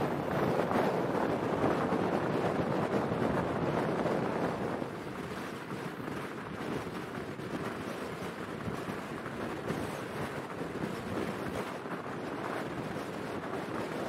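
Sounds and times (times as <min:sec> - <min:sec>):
wind rushing: 0:00.0 - 0:07.8
train rolling noise: 0:00.0 - 0:14.0.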